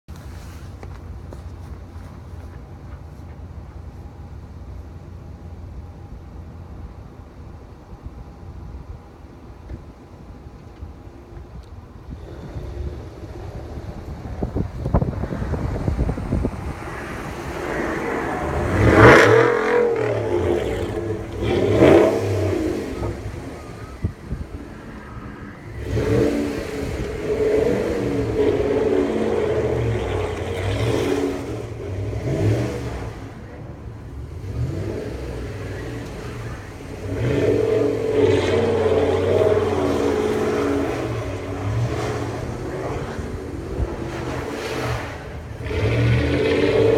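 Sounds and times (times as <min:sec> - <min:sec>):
truck engine revving hard: 0:12.1 - 0:46.9.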